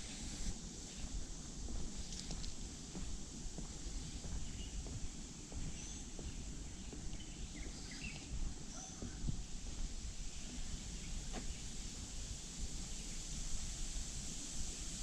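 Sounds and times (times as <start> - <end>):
faint footsteps on a path: 0.1 - 13.0.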